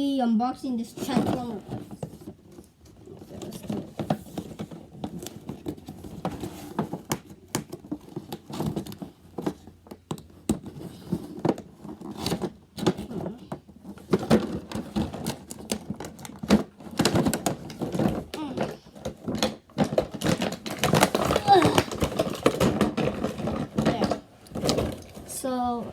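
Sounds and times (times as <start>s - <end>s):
packaging crinkling: 13.8s - 25.4s.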